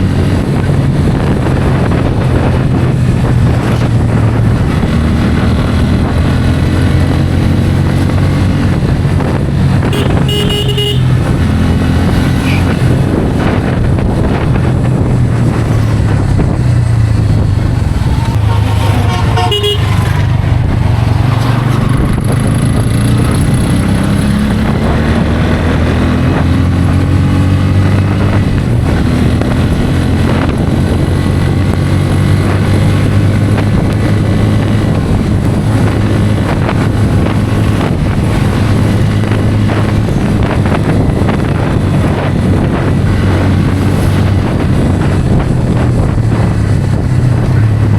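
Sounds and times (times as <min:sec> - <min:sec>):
motorcycle engine running: 0:00.0 - 0:47.9
vehicle horn: 0:09.8 - 0:11.4, 0:18.4 - 0:20.2.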